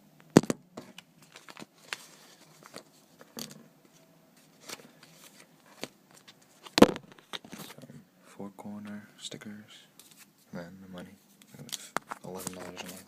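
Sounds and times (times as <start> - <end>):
hands sorting package contents: 0.4 - 7.8
packing rustling: 0.9 - 3.0.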